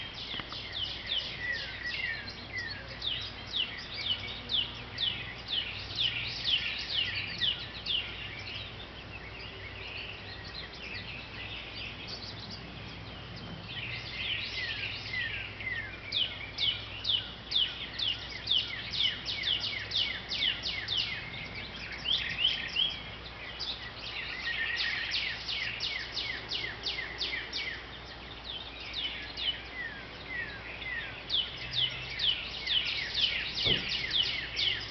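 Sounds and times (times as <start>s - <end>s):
small songbirds chirping: 0.0s - 34.9s.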